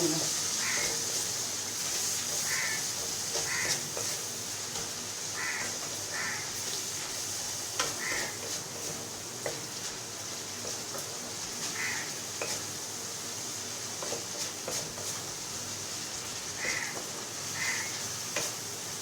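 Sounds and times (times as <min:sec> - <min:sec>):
paste sizzling in oil: 0:00.0 - 0:19.0
crow cawing: 0:00.6 - 0:01.0, 0:02.4 - 0:03.8, 0:05.4 - 0:06.6, 0:08.0 - 0:08.4, 0:11.7 - 0:12.2, 0:16.6 - 0:17.0, 0:17.6 - 0:18.0
spatula clicking on pan: 0:02.3 - 0:05.0, 0:07.8 - 0:09.7.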